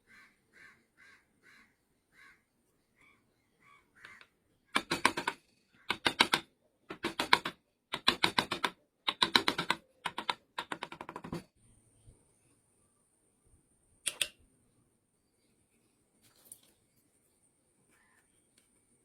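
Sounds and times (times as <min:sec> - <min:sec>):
carving tools tapping wood: 0:04.1 - 0:11.5.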